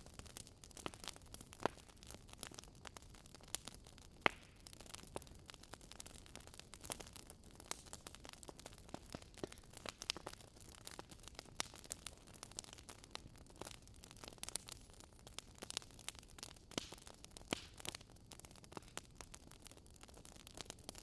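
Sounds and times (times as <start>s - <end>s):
bonfire crackling: 0.0s - 21.0s.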